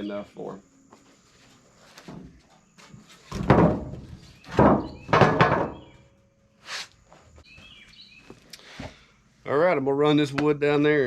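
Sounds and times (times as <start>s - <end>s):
wooden boards thudding onto stack: 3.2s - 5.9s.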